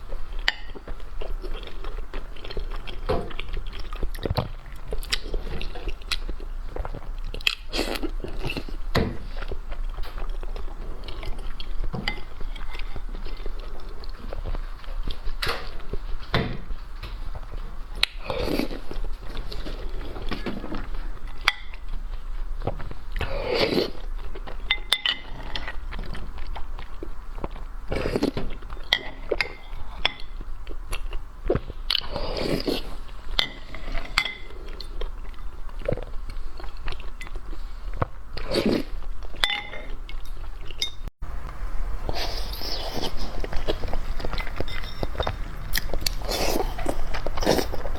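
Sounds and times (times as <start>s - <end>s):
chewing and crunching: 0.0s - 41.1s, 42.0s - 47.9s
dishes clinking: 24.7s - 25.4s, 33.4s - 34.6s, 39.4s - 41.0s, 43.7s - 46.2s.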